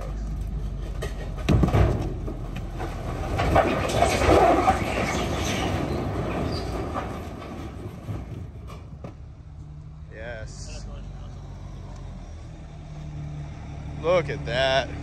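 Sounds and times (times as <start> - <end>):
boulders clattering against steel: 0.0 - 9.4
truck engine running: 0.0 - 15.0.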